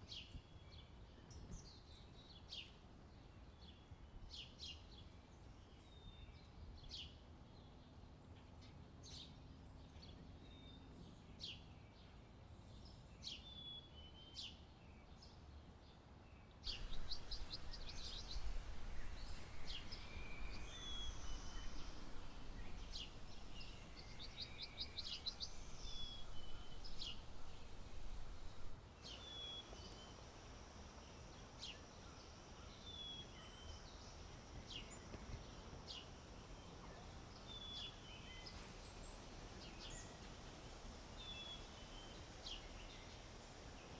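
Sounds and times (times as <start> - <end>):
low wind noise rumble: 16.7 - 29.0
birds chirping and trilling: 16.7 - 29.7.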